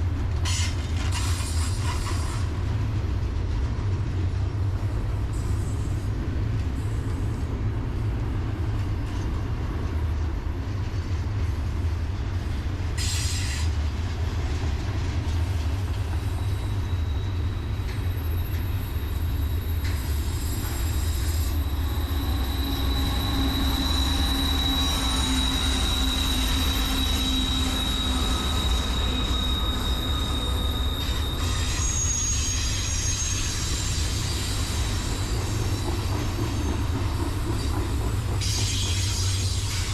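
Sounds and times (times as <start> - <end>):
freight train rumbling: 0.0 - 39.9
steel wheels squealing: 15.8 - 39.9.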